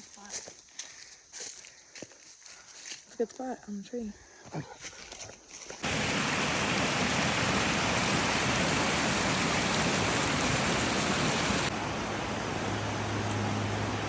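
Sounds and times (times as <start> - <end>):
waterfall rushing: 5.8 - 14.0.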